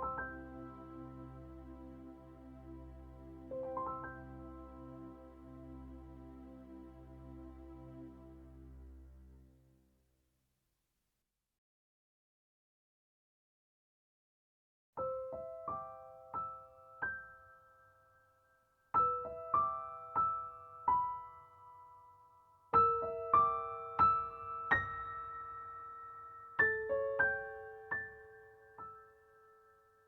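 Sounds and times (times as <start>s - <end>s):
gentle piano melody: 0.0s - 9.1s, 15.0s - 30.0s.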